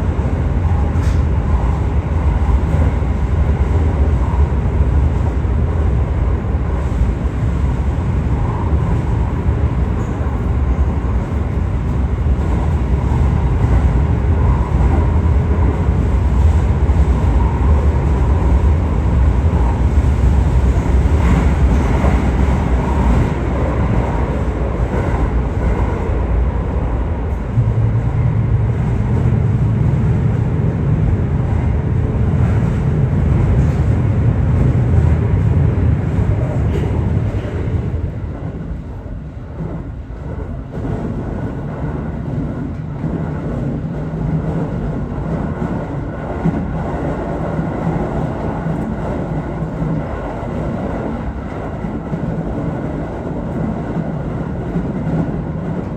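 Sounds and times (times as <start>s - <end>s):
train wheels rumbling on rails: 0.0s - 55.9s
deep steady hum: 27.5s - 30.9s.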